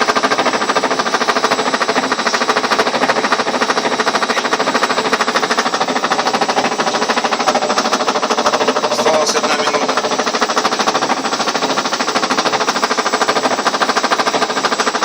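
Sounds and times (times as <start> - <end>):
rapid knocking inside machine: 0.0 - 15.0
washing machine spinning: 0.0 - 15.0
person talking: 8.8 - 10.0.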